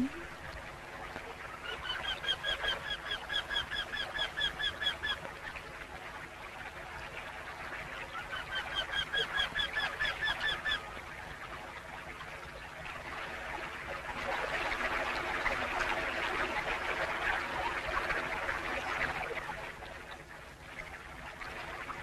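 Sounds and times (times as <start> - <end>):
faint jungle background: 0.0 - 0.8.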